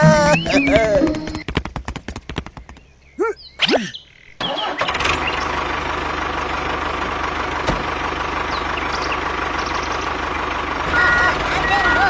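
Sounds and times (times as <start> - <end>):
diesel engine running: 4.6 - 12.0.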